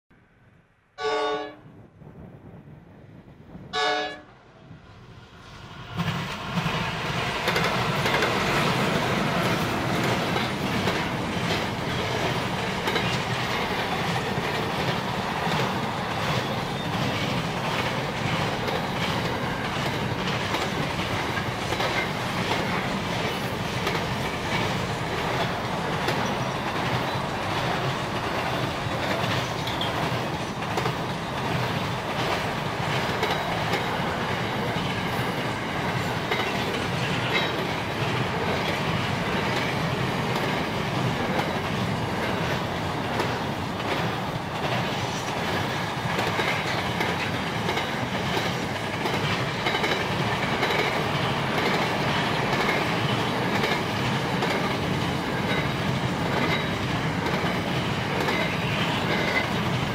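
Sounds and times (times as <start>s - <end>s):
locomotive horn blasts: 1.0s - 1.6s, 3.8s - 4.3s
train wagons rumbling past: 1.0s - 59.9s
wheels clacking over rail joints: 6.0s - 59.9s.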